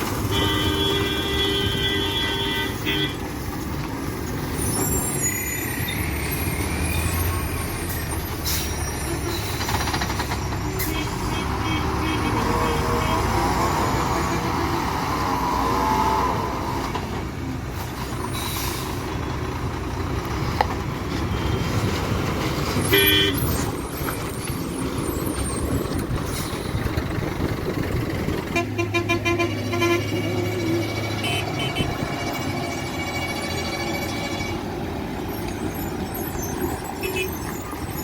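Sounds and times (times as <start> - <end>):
truck diesel engines running: 0.0 - 38.0
rapid pulsing horn beeps: 28.6 - 34.6.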